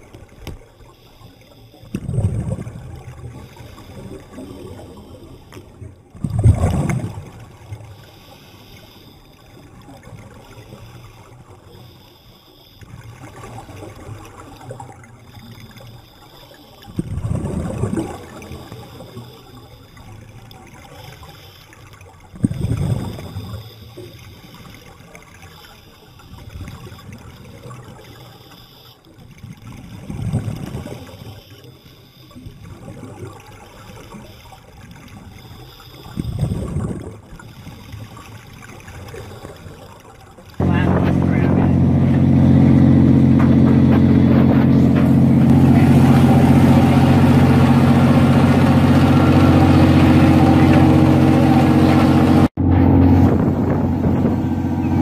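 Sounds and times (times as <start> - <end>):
underwater exhaled bubbles: 0.0 - 55.0
low underwater rumble: 40.5 - 55.0.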